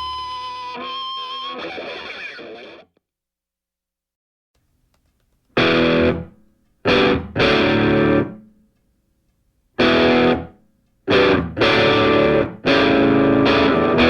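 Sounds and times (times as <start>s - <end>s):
distorted electric guitar chords: 0.0s - 2.9s, 5.6s - 6.3s, 6.9s - 8.4s, 9.8s - 10.5s, 11.1s - 14.0s.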